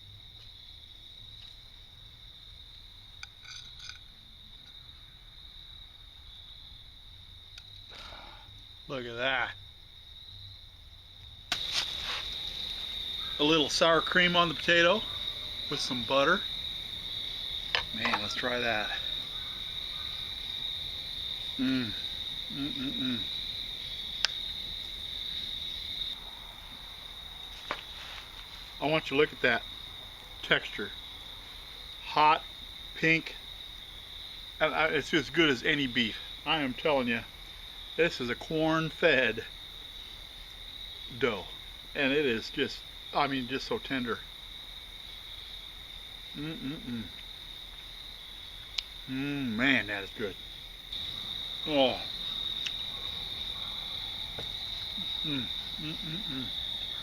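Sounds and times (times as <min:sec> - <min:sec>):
crickets chirping: 0:00.0 - 0:57.0
man humming while chewing: 0:21.6 - 0:23.3, 0:46.4 - 0:47.2, 0:49.1 - 0:49.5, 0:54.9 - 0:57.0.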